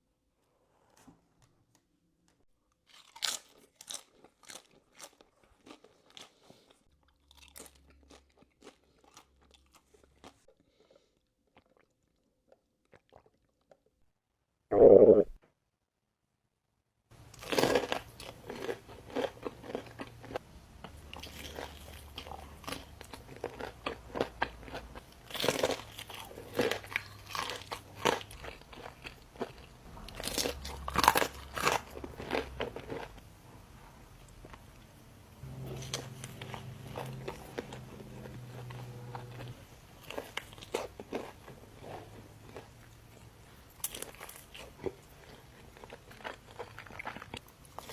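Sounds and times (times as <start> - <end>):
chewing and crunching food: 2.6 - 14.0, 17.1 - 47.9
mouth clicks: 14.7 - 15.4.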